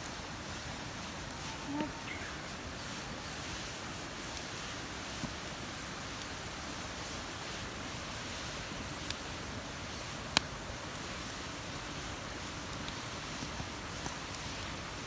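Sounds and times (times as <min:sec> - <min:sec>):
bird call: 0:01.5 - 0:02.5.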